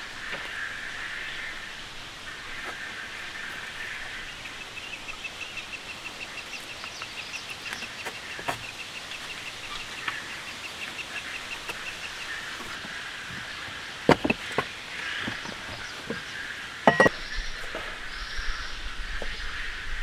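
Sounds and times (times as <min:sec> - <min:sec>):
sharp knocks: 0:13.3 - 0:17.1.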